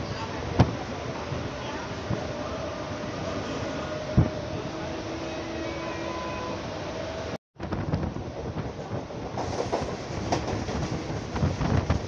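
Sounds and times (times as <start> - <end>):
electric train rumbling: 0.0 - 12.0
passing train wheel clatter: 7.9 - 12.0.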